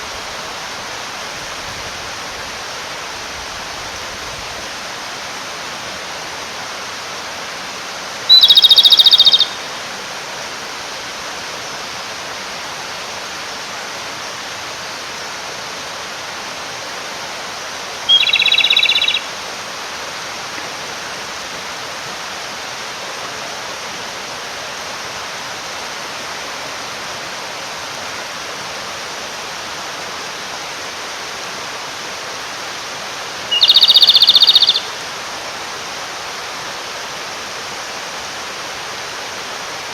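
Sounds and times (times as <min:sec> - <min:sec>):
mountain stream rushing: 0:00.0 - 0:39.9
bird singing rattling trill: 0:08.3 - 0:09.6, 0:18.1 - 0:19.3, 0:33.5 - 0:35.0.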